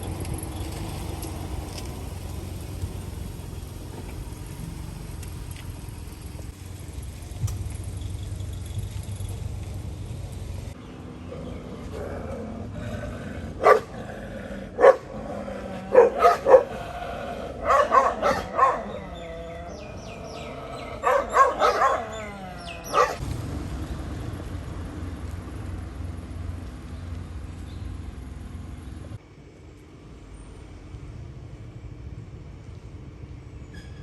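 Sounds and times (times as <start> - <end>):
dogs barking: 11.3 - 23.2.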